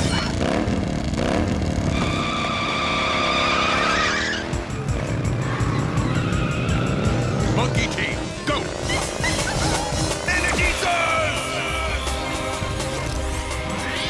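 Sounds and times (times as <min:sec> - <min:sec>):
cartoon motorcycle engines revving: 0:00.0 - 0:14.0
background music: 0:03.0 - 0:14.0.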